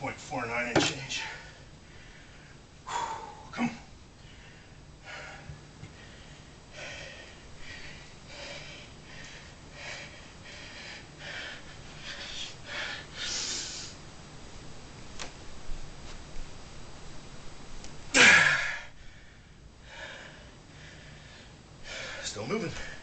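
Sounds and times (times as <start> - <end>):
man breathing forcefully: 1.3 - 3.6, 4.2 - 14.0, 18.2 - 23.0.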